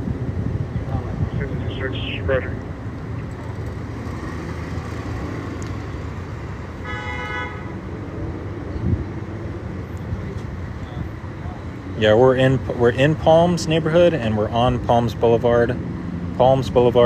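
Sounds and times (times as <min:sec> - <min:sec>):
street traffic rumble: 0:00.0 - 0:17.0
car horn toot: 0:06.8 - 0:07.8.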